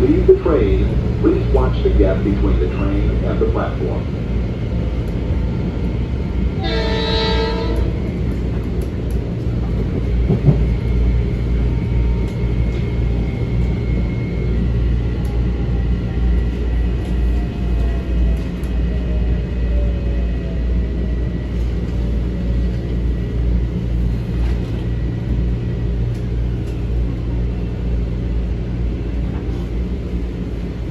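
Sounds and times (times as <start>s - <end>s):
train wheels and motors rumbling: 0.0s - 30.9s
train horn blast: 6.6s - 8.0s.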